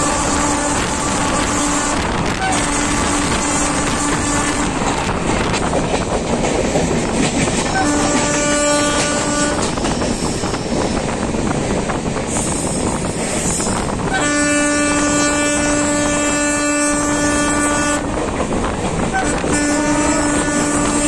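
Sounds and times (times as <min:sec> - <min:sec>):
locomotive horn blasts: 0:00.0 - 0:04.8, 0:07.7 - 0:09.8, 0:14.0 - 0:18.2, 0:19.1 - 0:21.0
train rumbling on rails: 0:00.0 - 0:21.0.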